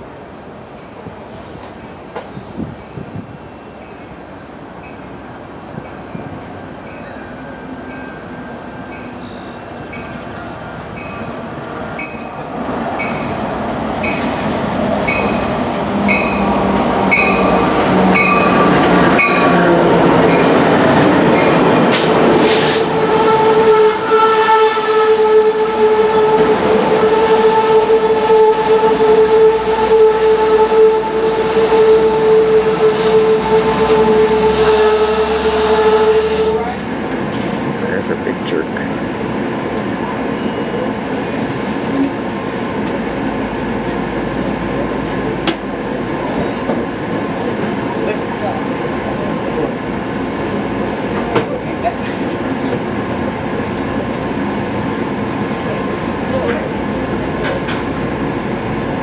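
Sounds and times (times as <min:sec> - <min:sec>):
train approaching: 0:00.0 - 0:59.0
steady high tone: 0:22.8 - 0:36.8.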